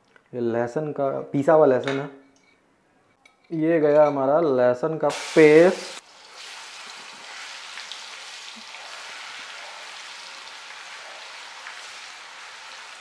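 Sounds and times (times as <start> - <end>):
garlic sizzling in oil: 5.1 - 13.0
spatula stirring in pan: 6.4 - 13.0.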